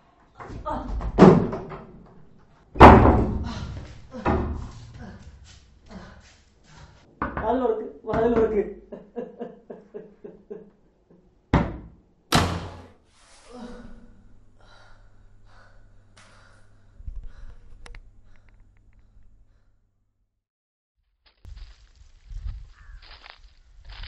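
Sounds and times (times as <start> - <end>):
loud thuds: 2.8 - 4.8.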